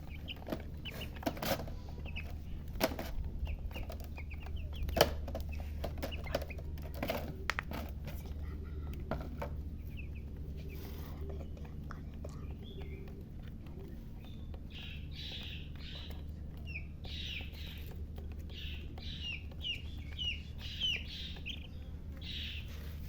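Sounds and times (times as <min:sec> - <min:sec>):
chicks peeping: 0:00.0 - 0:23.0
hen clucking: 0:00.0 - 0:23.0
steady low hum: 0:00.0 - 0:23.0.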